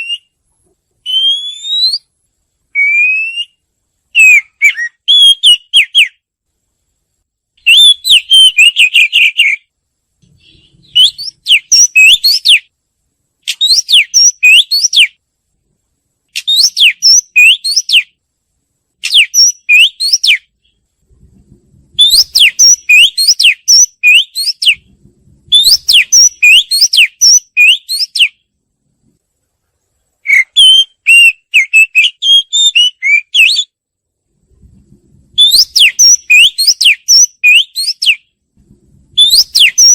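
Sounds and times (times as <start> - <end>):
bird singing whistled notes: 0.0 - 0.4, 1.0 - 2.1, 2.7 - 6.2, 7.6 - 9.7, 10.4 - 12.7, 13.5 - 15.2, 16.4 - 18.2, 19.0 - 20.8, 22.0 - 24.9, 25.5 - 28.4, 30.2 - 33.8, 35.4 - 38.3, 39.2 - 39.9.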